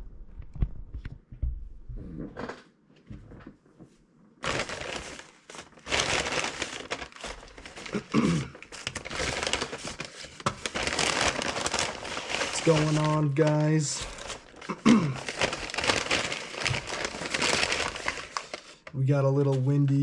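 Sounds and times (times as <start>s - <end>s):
paper packaging crinkling: 4.4s - 20.0s.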